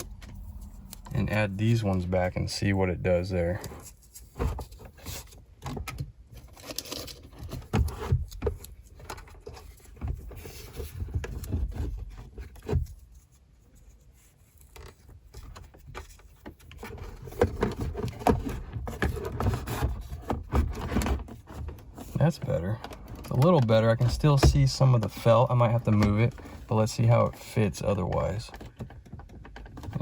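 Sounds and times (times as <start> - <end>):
plastic clicks knocks and scrapes: 3.6 - 30.0.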